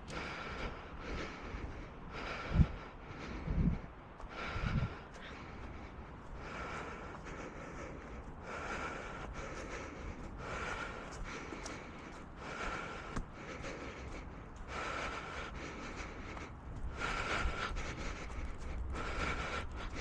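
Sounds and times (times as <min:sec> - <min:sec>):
runner breathing heavily: 0:00.0 - 0:20.0.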